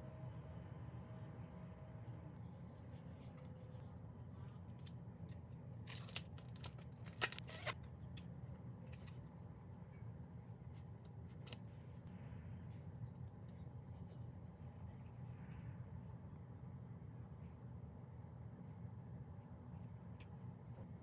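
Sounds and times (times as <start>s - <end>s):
steady low hum: 0.0s - 21.0s
packaging clicks: 5.9s - 7.8s
packaging rustling: 5.9s - 7.8s.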